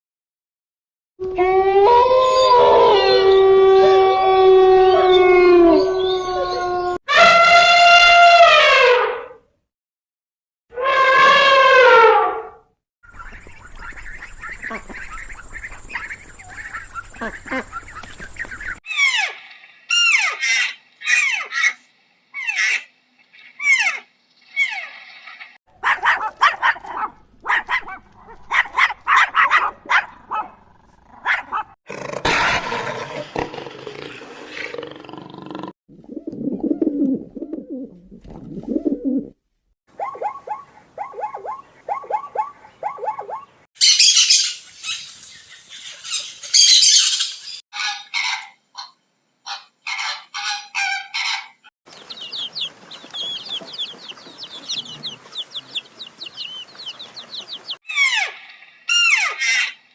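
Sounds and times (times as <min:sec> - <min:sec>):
rapid animal chattering: 0:13.9 - 0:18.8.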